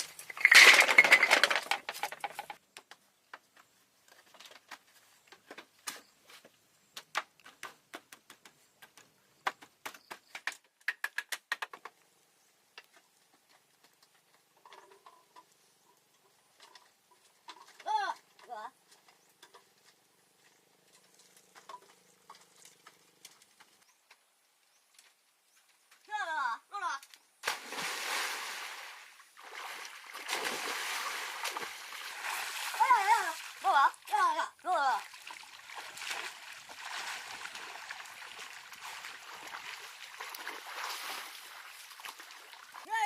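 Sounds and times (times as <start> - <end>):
water splashing and trickling: 27.4 - 43.0.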